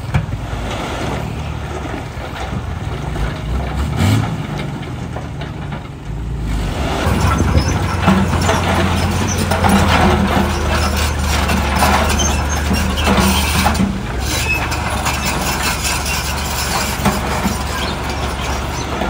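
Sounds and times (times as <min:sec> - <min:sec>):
diesel construction machinery running: 0:00.0 - 0:19.0
metallic clanking and rattling: 0:07.0 - 0:19.0.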